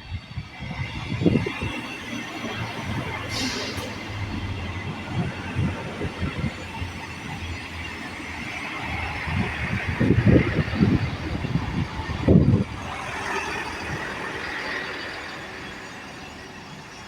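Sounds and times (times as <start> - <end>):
wind buffeting microphone: 0.0 - 14.7
diesel engine drone: 0.0 - 16.7.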